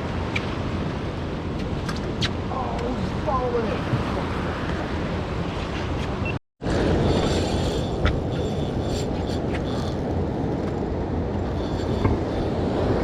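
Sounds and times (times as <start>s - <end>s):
wind on microphone: 0.0s - 13.0s
sea waves washing: 6.6s - 10.6s.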